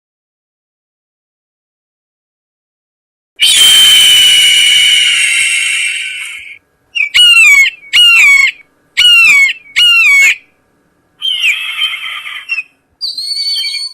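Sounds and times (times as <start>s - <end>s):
recorded bird squawks from speaker: 3.4s - 10.4s, 11.2s - 13.9s.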